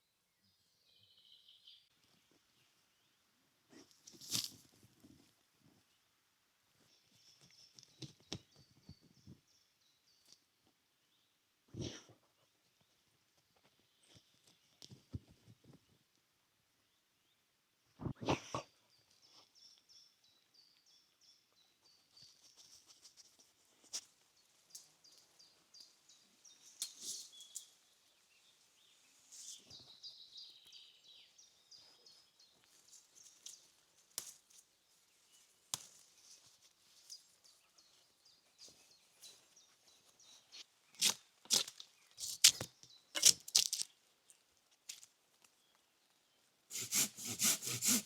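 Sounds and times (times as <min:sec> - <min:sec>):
songbirds chirping: 0:00.0 - 0:46.7
rasping strokes on wood: 0:46.7 - 0:48.0.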